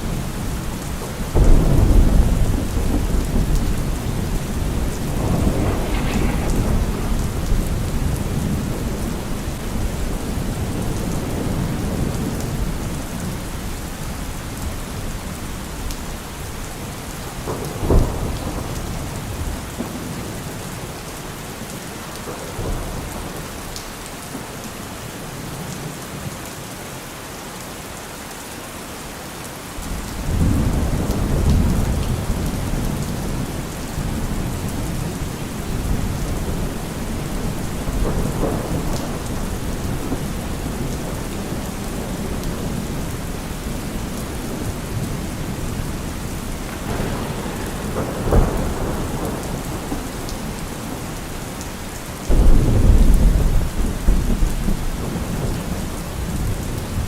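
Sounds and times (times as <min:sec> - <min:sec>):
rolling thunder: 0:00.0 - 0:23.8, 0:29.8 - 0:57.0
steady rain: 0:00.0 - 0:57.0
sharp thunder crack: 0:01.3 - 0:12.3, 0:44.0 - 0:51.4, 0:52.3 - 0:55.5.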